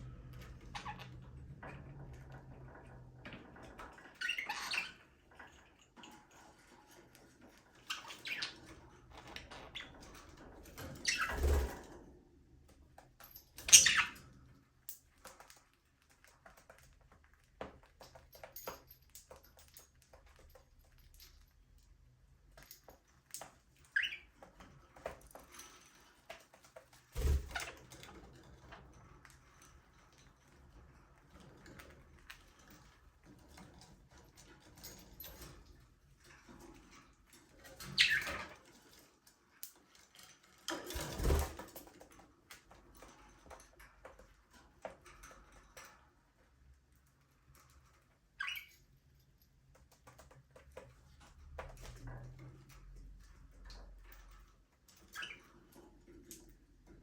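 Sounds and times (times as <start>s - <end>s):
bird chirp: 37.9s - 38.4s, 48.4s - 48.8s.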